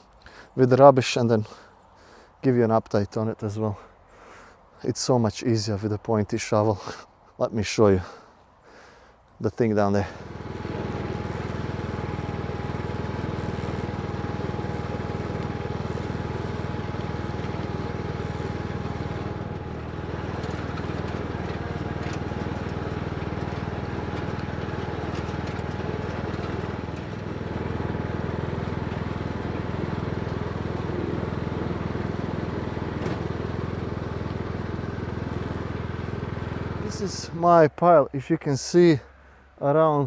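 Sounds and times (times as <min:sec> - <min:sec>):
vehicle engine running: 0:10.0 - 0:37.7.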